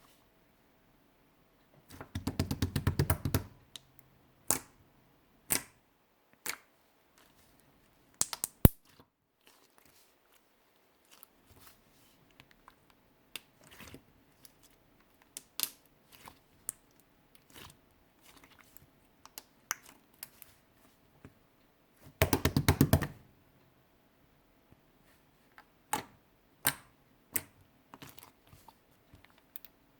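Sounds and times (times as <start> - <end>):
slime squishing by hand: 6.4 - 21.0, 25.0 - 29.8.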